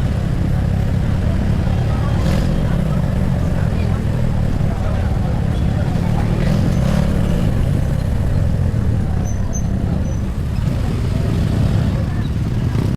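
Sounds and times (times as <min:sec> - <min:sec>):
motorcycle engine rumble: 0:00.0 - 0:12.9
road noise: 0:00.0 - 0:12.9.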